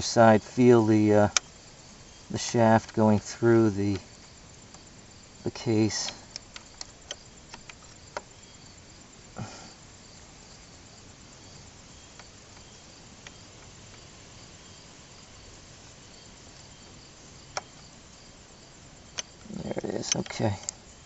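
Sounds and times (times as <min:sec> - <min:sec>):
metal engine parts clicking: 0:19.1 - 0:20.8.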